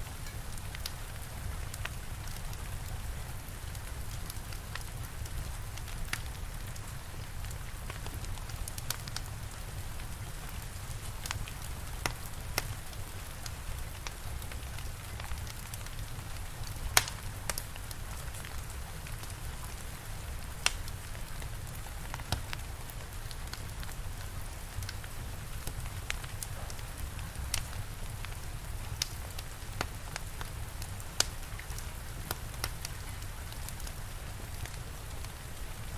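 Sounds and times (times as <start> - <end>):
steady rain: 0.0 - 35.9
wood fire crackling: 0.0 - 35.9.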